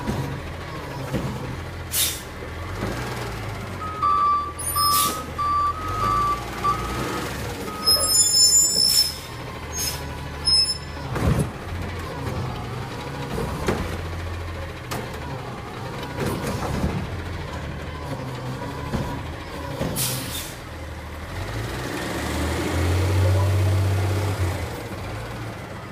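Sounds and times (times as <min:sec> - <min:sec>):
clunks: 0:00.0 - 0:20.6
diesel engine rumble: 0:00.0 - 0:25.9
air brake hiss: 0:01.9 - 0:02.3, 0:20.0 - 0:20.6
backup alarm beeping: 0:03.8 - 0:08.4.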